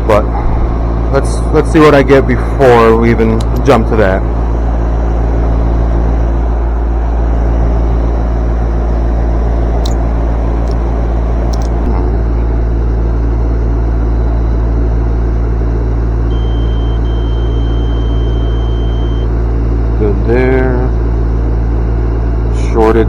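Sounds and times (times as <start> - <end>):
low machine hum: 0.0 - 23.0
multimeter continuity beep: 16.3 - 19.3.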